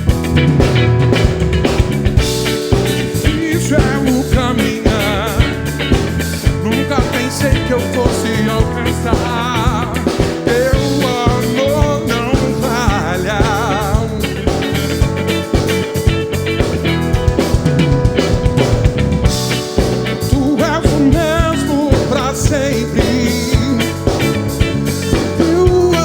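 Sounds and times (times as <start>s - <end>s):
drum kit beat: 0.0s - 26.0s
lead melody with vibrato: 0.0s - 26.0s
live soul band playing: 0.0s - 26.0s.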